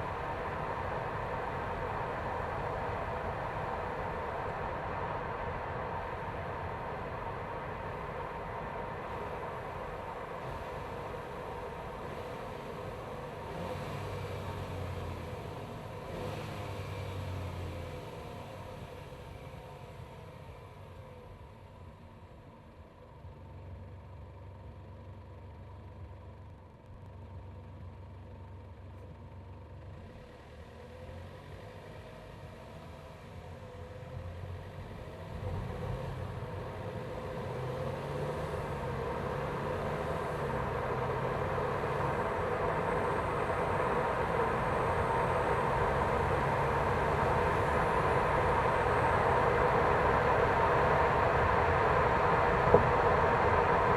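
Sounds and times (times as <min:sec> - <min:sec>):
car engine running: 0:00.0 - 0:20.6, 0:33.6 - 0:53.9
rising rush of noise: 0:37.0 - 0:53.9.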